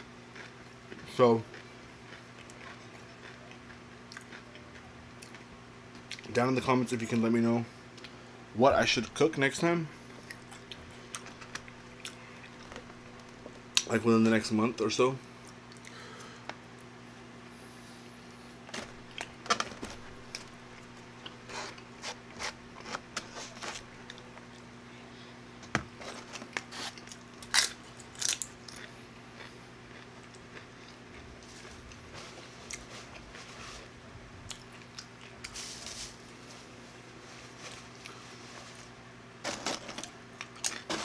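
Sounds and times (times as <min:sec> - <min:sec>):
steady low hum: 0:00.0 - 0:41.0
chewing and mouth noises: 0:00.3 - 0:06.3, 0:10.2 - 0:13.9, 0:15.4 - 0:16.0, 0:26.5 - 0:33.4, 0:34.4 - 0:35.6.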